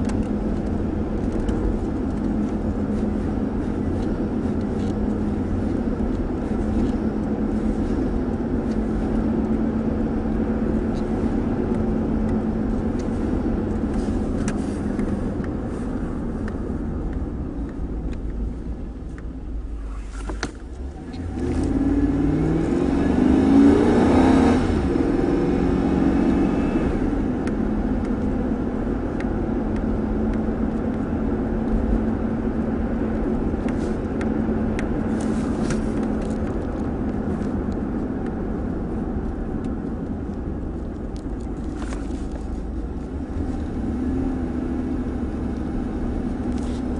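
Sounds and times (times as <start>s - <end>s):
road noise: 0.0s - 46.9s
truck engine: 0.0s - 46.9s
truck engine revving: 21.2s - 32.0s.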